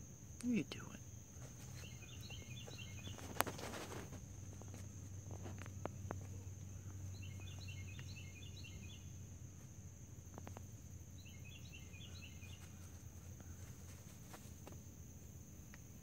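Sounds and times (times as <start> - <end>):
small bird chirping: 0.4 - 9.3, 10.3 - 14.5
faint ticks: 10.2 - 10.8, 15.6 - 16.0.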